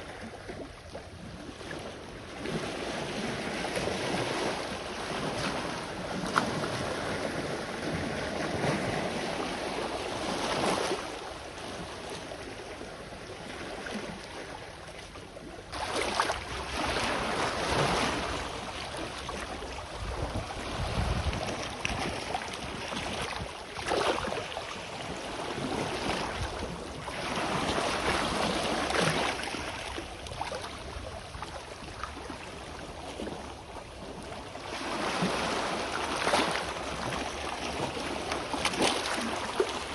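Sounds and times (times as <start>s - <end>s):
wind gust on microphone: 19.9s - 22.8s.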